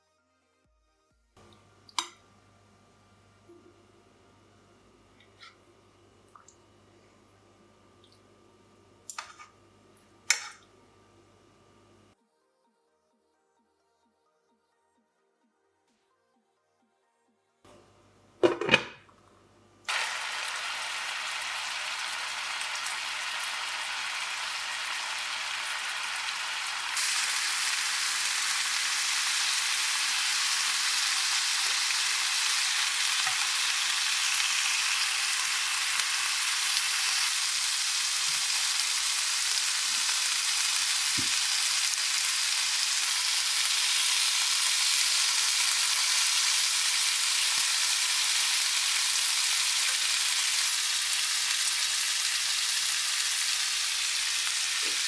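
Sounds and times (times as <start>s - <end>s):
food frying in hot pan: 19.9s - 55.0s.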